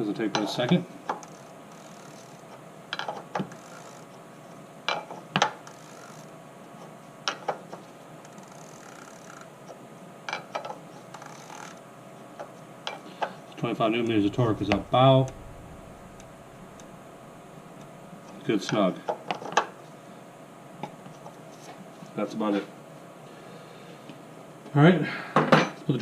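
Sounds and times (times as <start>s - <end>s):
ratchet wrench clicking: 3.5s - 4.0s, 8.3s - 9.4s.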